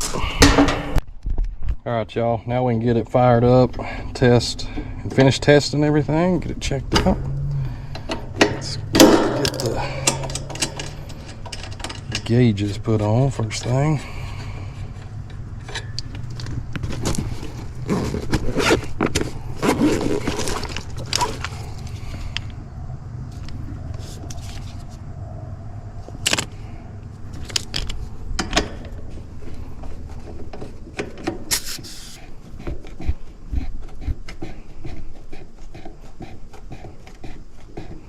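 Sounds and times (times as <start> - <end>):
steady low hum: 1.8 - 38.0
metal hoses clicking and rattling: 7.0 - 22.6.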